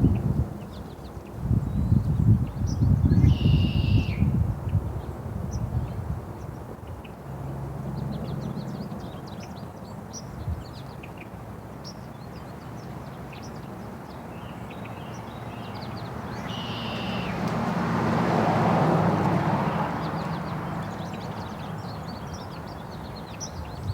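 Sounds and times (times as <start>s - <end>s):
small birds chirping: 11.8s - 17.4s.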